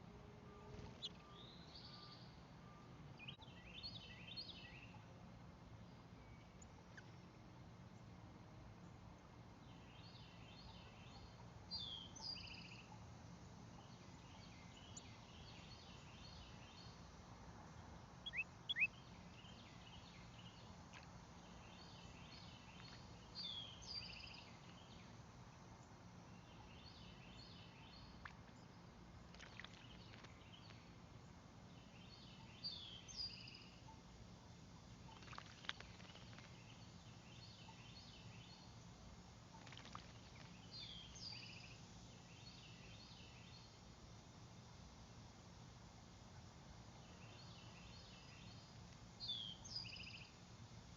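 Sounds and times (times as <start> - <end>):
background bird chorus: 0.0 - 45.7, 46.4 - 50.9
sharp bird chirps: 18.2 - 19.0.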